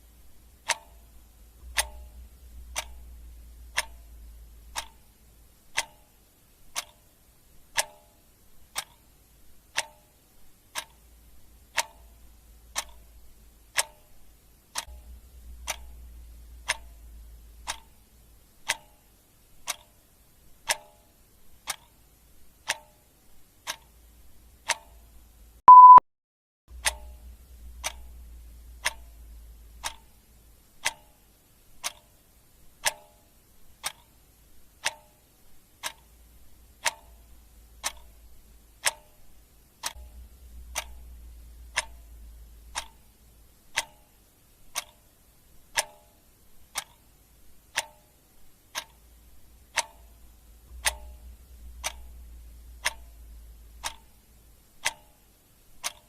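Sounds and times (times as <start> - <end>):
clock ticking: 0.0 - 26.0, 26.7 - 56.0
short single-tone beep: 25.7 - 26.0.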